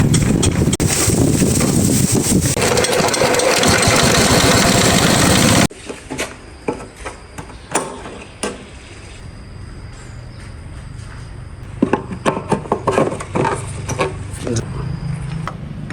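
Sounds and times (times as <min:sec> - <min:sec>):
small generator engine running: 0:00.0 - 0:05.7.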